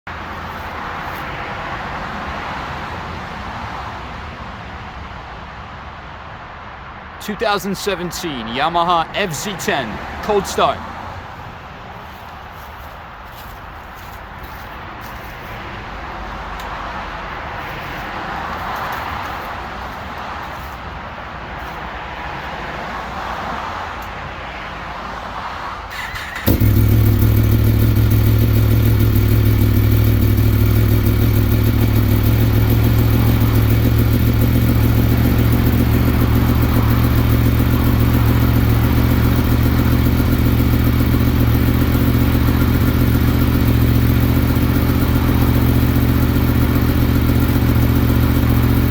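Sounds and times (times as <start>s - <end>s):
background noise: 0.1s - 40.2s
motorcycle engine idling: 26.0s - 48.9s
starter motor whirring: 26.0s - 48.9s.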